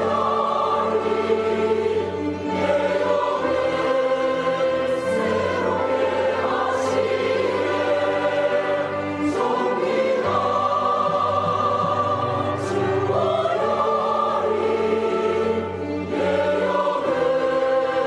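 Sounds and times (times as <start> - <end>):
church choir singing: 0.0 - 18.0.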